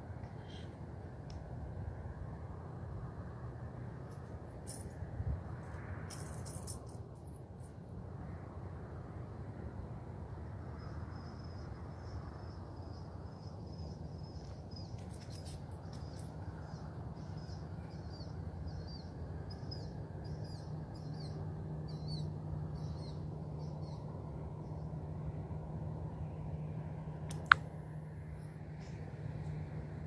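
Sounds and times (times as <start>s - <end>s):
low background rumble: 0.0s - 30.0s
small bird chirping: 13.4s - 24.1s.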